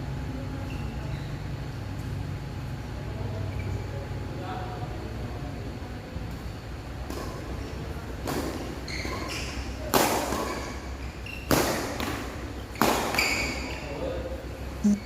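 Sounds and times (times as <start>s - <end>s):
high shoe squeaks: 0.6s - 1.4s, 8.8s - 9.7s, 10.4s - 11.6s, 12.8s - 14.0s.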